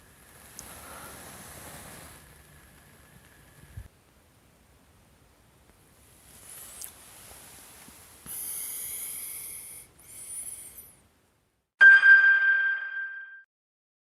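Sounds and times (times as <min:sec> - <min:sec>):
high hissing: 0:00.0 - 0:03.9, 0:08.2 - 0:11.0
bell-like chime: 0:11.8 - 0:13.5.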